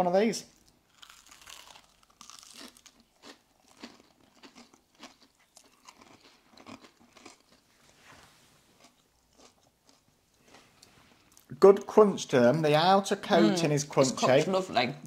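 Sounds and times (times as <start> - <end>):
people chewing crispy fish: 0.6 - 7.8, 8.8 - 11.6.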